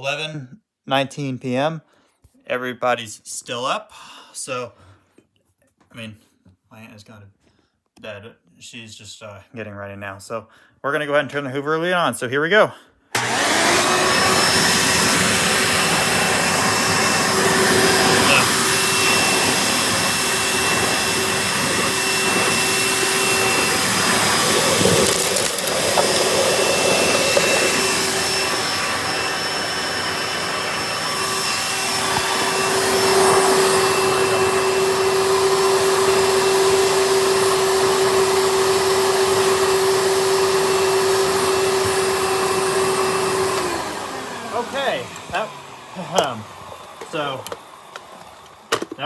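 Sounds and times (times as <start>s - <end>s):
vacuum cleaner running: 13.1s - 49.0s.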